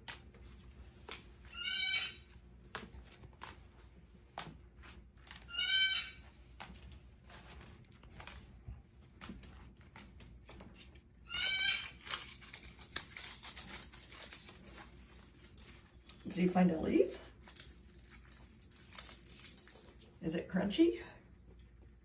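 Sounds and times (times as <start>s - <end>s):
cockatoo crunching dried leaves: 0.0s - 20.5s
cockatoo wavering calls: 1.5s - 2.3s, 5.5s - 6.3s, 11.2s - 12.2s.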